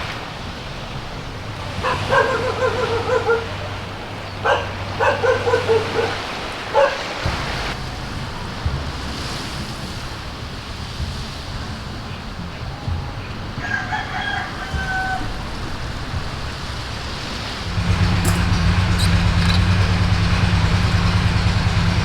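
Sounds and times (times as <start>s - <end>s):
waves washing on shore: 0.0s - 22.0s
wavering animal calls: 1.4s - 7.1s, 16.8s - 22.0s.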